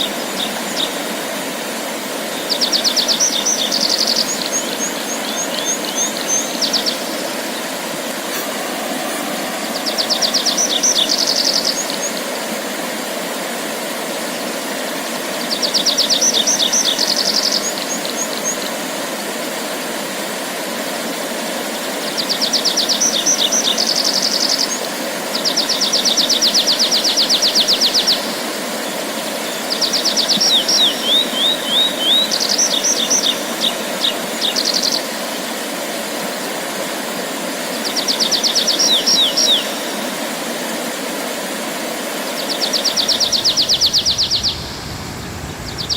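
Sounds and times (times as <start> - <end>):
songbird trilling: 2.5 - 7.7, 9.6 - 12.2, 29.6 - 35.1, 37.9 - 40.0, 42.4 - 45.0, 45.6 - 45.9
low background rumble: 43.2 - 45.9.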